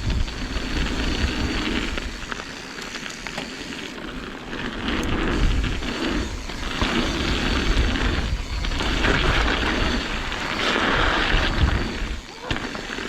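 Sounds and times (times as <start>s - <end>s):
wind buffeting microphone: 0.0s - 2.3s, 5.0s - 13.0s
bike tyres rolling on dirt: 0.0s - 13.0s.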